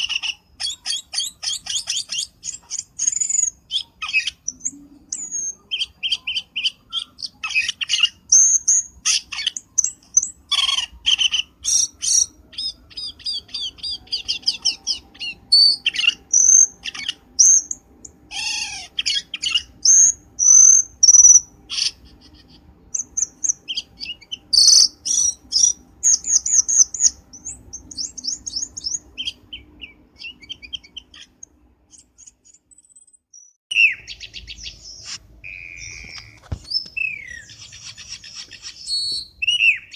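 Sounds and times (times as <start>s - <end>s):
bird call chirps and trills: 0.0s - 39.9s.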